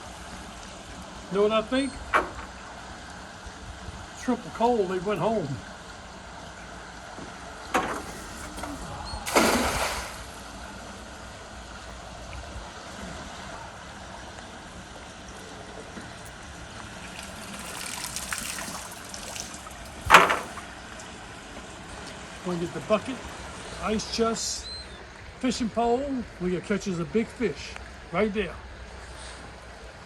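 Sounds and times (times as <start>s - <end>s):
water splashing: 7.3s - 10.6s, 16.3s - 20.8s
water dripping off net: 9.3s - 10.4s, 16.8s - 20.6s.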